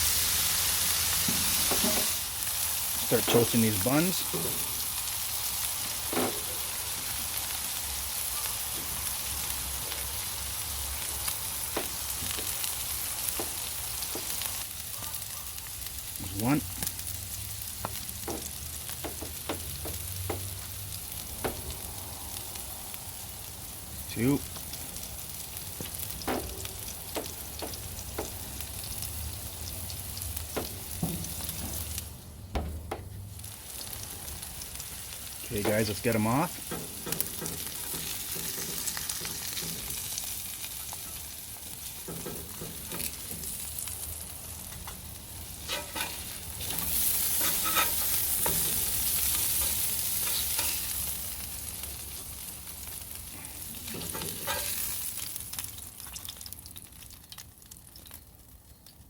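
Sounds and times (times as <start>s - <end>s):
burgers sizzling on a hot surface: 0.0s - 59.0s
sharp clicks and knocks: 32.5s - 33.1s.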